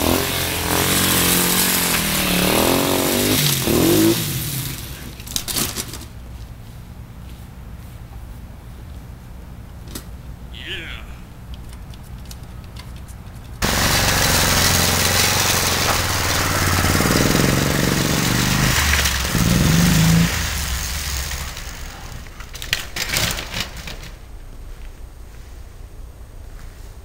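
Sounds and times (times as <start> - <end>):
motorbike engine running: 13.6 - 22.5.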